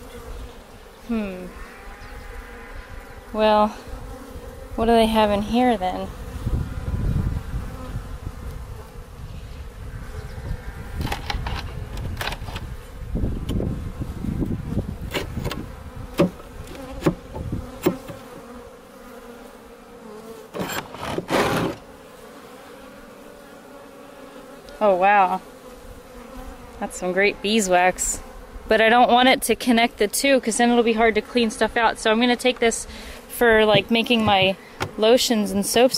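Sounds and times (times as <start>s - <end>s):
bees buzzing: 0.0s - 35.9s
hive boxes handling noise: 10.6s - 19.3s, 20.0s - 22.0s, 32.2s - 35.9s
scraping: 20.6s - 21.8s.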